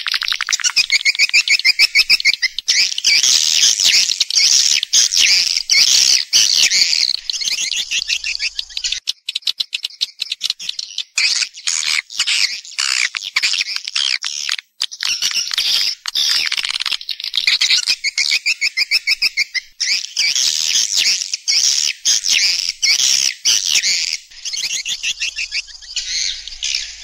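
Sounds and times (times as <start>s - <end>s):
swiftlets twittering and chattering: 22.1s - 27.0s.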